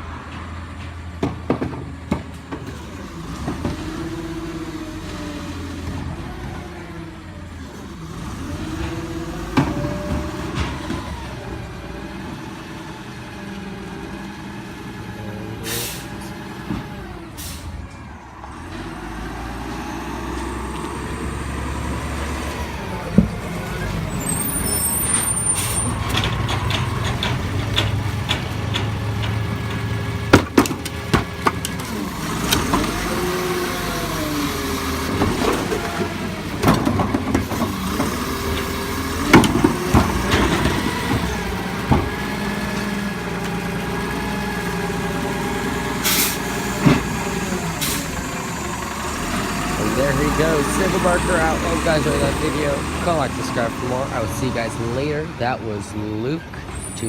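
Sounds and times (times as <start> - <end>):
sharp knocks and bangs: 0.3 - 2.8, 26.0 - 33.0, 35.1 - 42.4
truck engine revving: 1.9 - 57.0
air brake hisses: 15.7 - 16.2, 17.4 - 17.8, 46.0 - 46.4.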